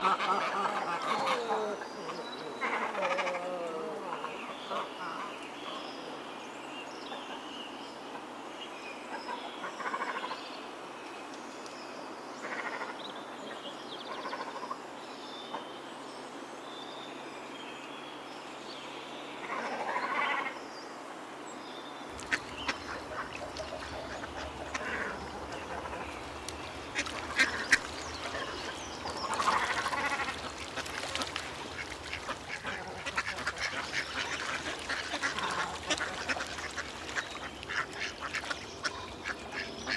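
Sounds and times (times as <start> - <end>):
ducks quacking: 0.0 - 5.3, 22.1 - 39.9.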